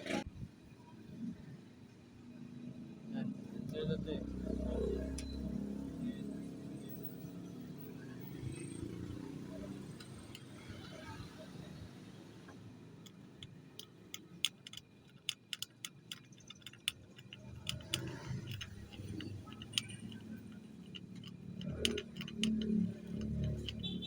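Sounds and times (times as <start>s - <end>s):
light metallic clicks: 12.5s - 24.0s
low rumbling handling noise: 12.5s - 24.0s.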